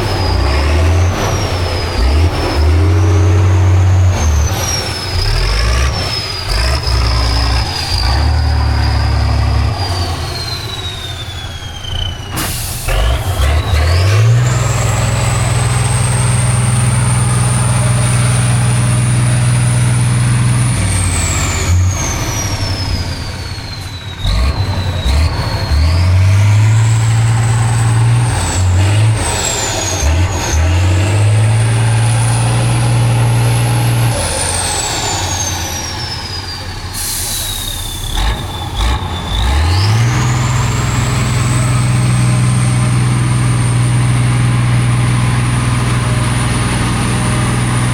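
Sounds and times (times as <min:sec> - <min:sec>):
truck engine at high revs: 0:00.0 - 0:47.9
high whistle: 0:04.2 - 0:13.2, 0:21.8 - 0:28.7, 0:33.7 - 0:40.7
hissing air burst: 0:12.4 - 0:13.4, 0:36.8 - 0:38.1.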